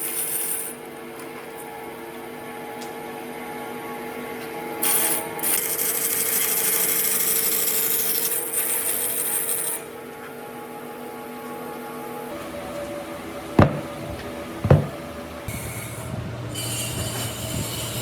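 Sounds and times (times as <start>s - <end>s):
motor hum: 12.1s - 18.0s
power tool sanding wood: 12.4s - 18.0s.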